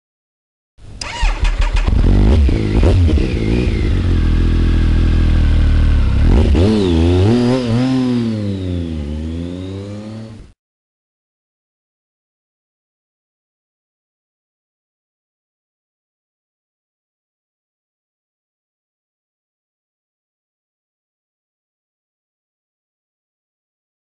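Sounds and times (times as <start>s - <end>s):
motorcycle engine starting: 0.8s - 10.6s
motorcycle engine revving: 1.0s - 10.6s.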